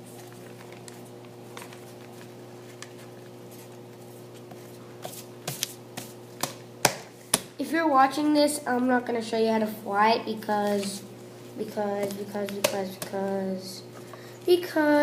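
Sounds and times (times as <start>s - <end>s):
paper rustling and crinkling: 0.0s - 6.2s
steady low hum: 0.0s - 15.0s.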